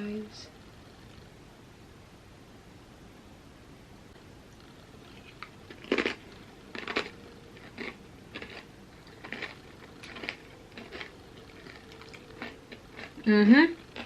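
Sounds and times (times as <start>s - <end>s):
crunchy chips being chewed: 4.5s - 14.0s.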